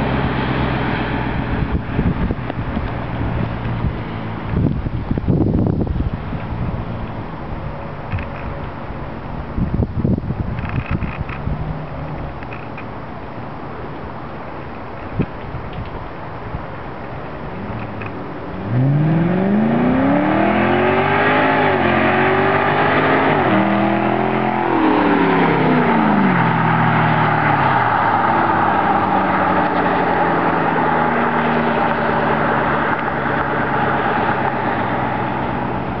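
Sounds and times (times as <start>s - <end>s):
car engine accelerating: 0.0s - 9.0s, 17.3s - 36.0s.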